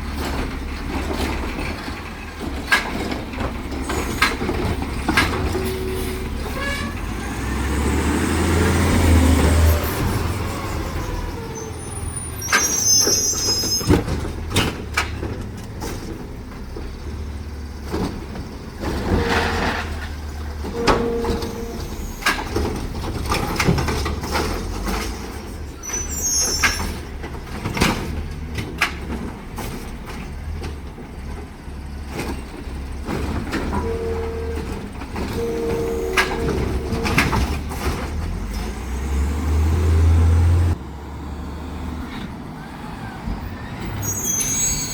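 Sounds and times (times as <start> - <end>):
knocks and clunks: 0.0 - 11.6, 12.5 - 25.7, 26.5 - 40.8
garbage truck engine running: 0.0 - 44.9
short high squeals: 9.4 - 14.0, 20.7 - 22.7, 25.8 - 27.0, 35.3 - 37.7, 42.6 - 44.9.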